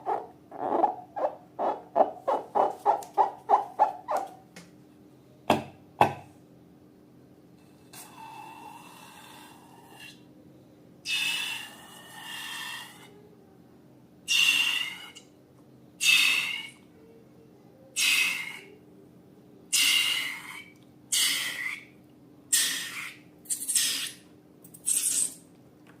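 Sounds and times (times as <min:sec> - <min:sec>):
air hissing out of balloons: 0:24.8 - 0:25.4.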